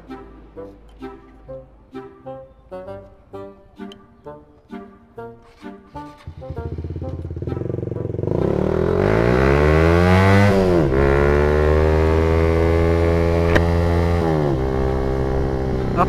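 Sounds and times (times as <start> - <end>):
motorcycle engine accelerating: 5.9 - 16.0
sharp click: 13.4 - 13.7.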